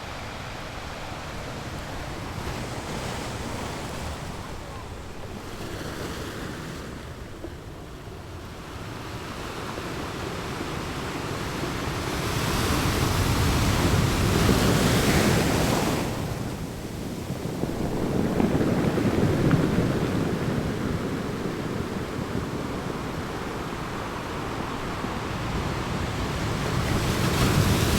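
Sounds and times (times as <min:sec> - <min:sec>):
ocean waves breaking on shore: 0:00.0 - 0:27.9.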